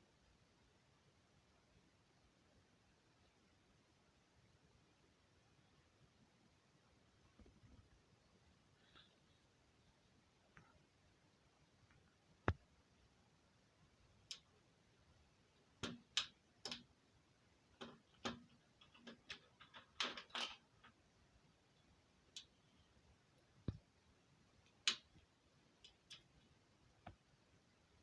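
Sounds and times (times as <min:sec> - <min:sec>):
light clicks and taps: 0:14.2 - 0:14.6, 0:15.7 - 0:16.9, 0:17.7 - 0:21.0.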